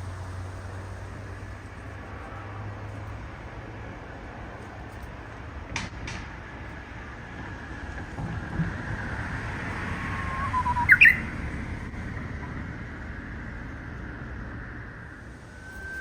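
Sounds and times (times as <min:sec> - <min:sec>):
bird singing whistled song: 0:10.0 - 0:11.4, 0:15.4 - 0:16.0.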